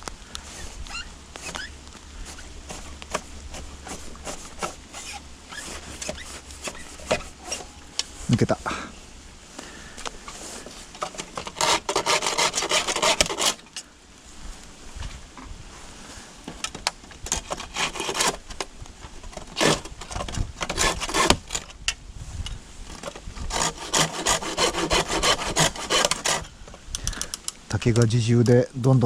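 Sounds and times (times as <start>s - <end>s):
hand saw cutting bamboo: 0.5s - 7.8s, 10.3s - 13.7s, 17.3s - 18.7s, 19.4s - 21.6s, 23.4s - 26.5s.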